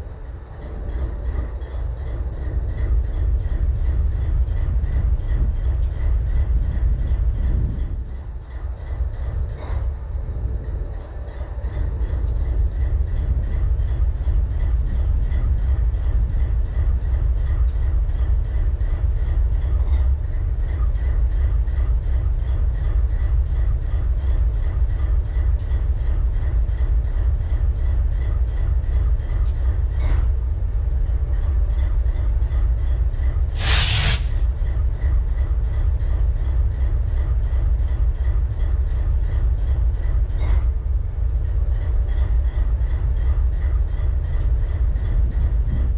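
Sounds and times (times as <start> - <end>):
diesel locomotive engine idling: 0.0 - 45.9
loud burst of hiss: 33.6 - 34.4.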